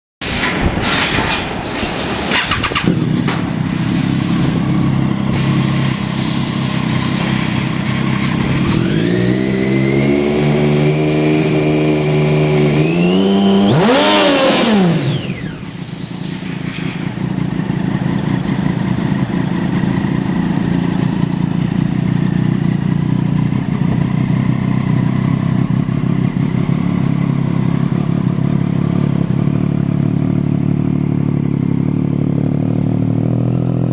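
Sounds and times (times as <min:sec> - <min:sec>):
motorcycle engine idling and revving: 0:02.3 - 0:33.9.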